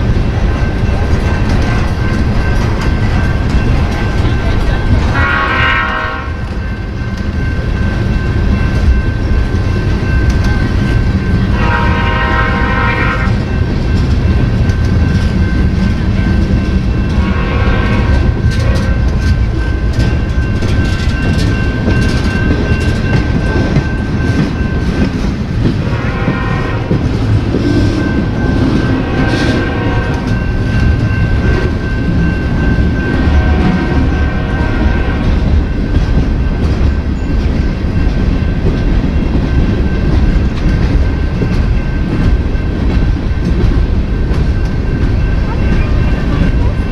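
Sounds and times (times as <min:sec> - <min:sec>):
freight train rumbling: 0:00.0 - 0:46.9
locomotive horn blasts: 0:05.1 - 0:06.5, 0:11.5 - 0:13.4, 0:17.2 - 0:19.0, 0:25.8 - 0:27.0, 0:28.9 - 0:30.3.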